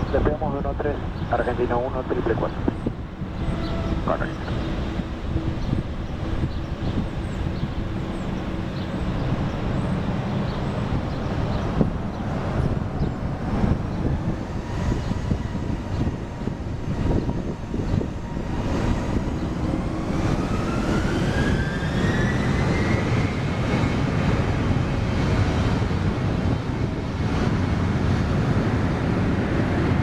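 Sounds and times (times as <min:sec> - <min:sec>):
heavy rumble: 0:00.0 - 0:20.8
jet engines spooling up: 0:00.0 - 0:23.9.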